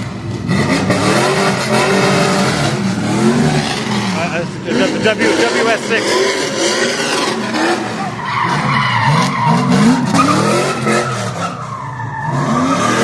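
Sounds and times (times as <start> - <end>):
car engine revving: 0.0 - 13.0
tires squealing: 0.0 - 13.0.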